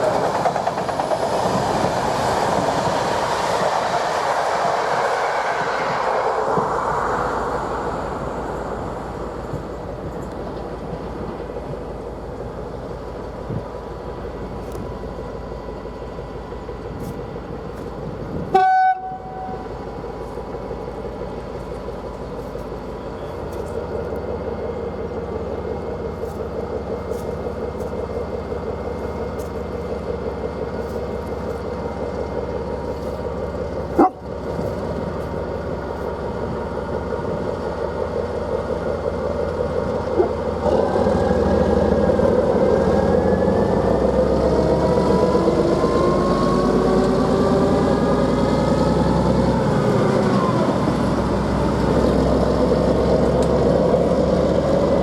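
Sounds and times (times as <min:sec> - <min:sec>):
diesel railcar running: 0:00.0 - 0:55.0
train horn blast: 0:18.5 - 0:19.7.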